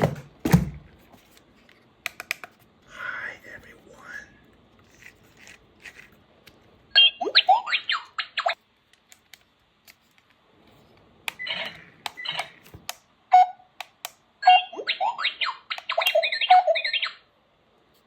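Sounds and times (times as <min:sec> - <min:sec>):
toy robot electronic chirps: 0:07.0 - 0:08.6, 0:14.4 - 0:17.3.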